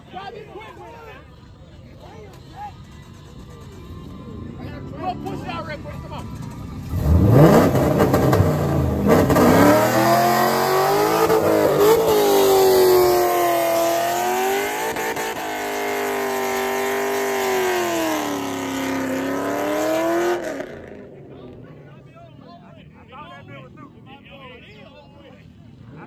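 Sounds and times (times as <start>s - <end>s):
car engine revving hard: 6.9s - 21.0s.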